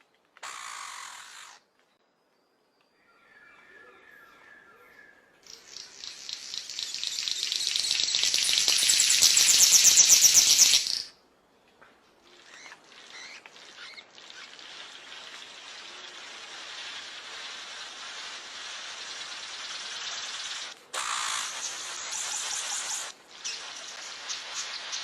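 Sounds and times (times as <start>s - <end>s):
steady forest hiss: 0.2s - 25.0s
scattered bird calls: 12.3s - 25.0s
bird hissing buzz call: 14.4s - 25.0s.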